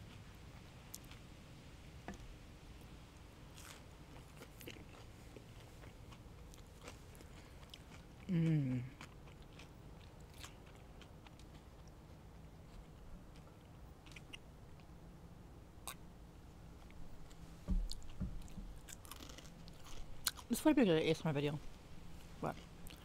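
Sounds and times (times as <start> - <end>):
chewing crunchy food: 0.1 - 1.3, 3.5 - 15.0, 16.8 - 20.6, 22.2 - 23.0
person humming mm: 8.3 - 9.0.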